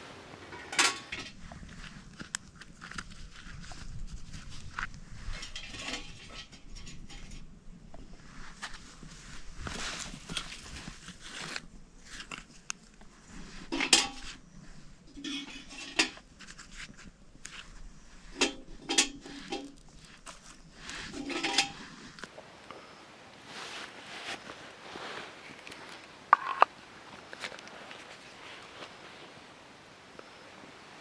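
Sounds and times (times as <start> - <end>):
metal cookware clinking: 0.4 - 1.2, 21.2 - 21.8.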